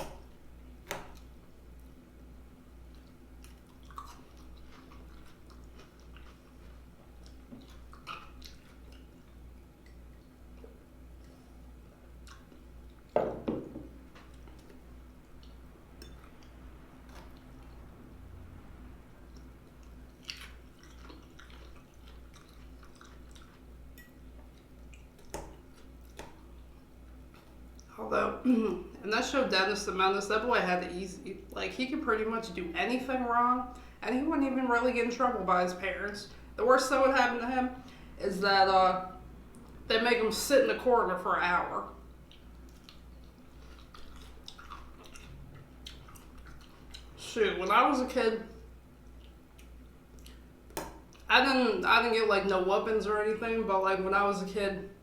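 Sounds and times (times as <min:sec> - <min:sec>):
low steady hum: 0:00.0 - 0:55.0
person chewing food: 0:02.8 - 0:13.2, 0:13.9 - 0:18.3, 0:19.0 - 0:27.9, 0:42.1 - 0:47.2, 0:48.9 - 0:51.3.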